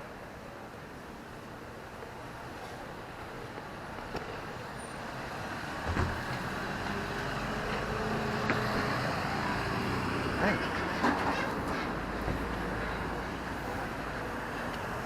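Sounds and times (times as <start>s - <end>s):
heavy vehicle approaching: 4.7s - 15.0s.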